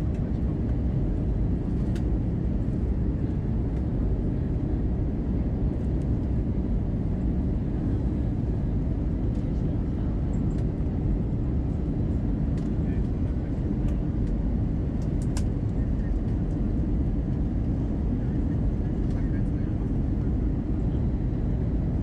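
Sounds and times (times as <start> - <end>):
aircraft cabin airflow roar: 0.0 - 22.0
faint click: 15.2 - 15.5.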